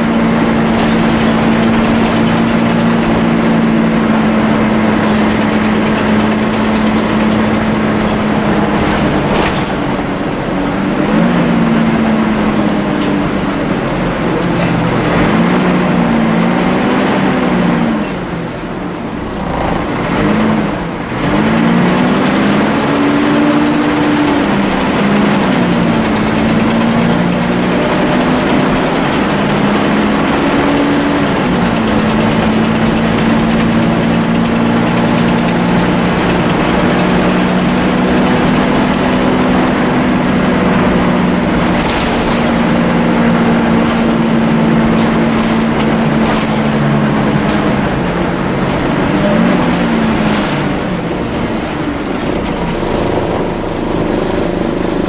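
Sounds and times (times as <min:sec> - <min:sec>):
bus engine whining: 0:00.0 - 0:55.0.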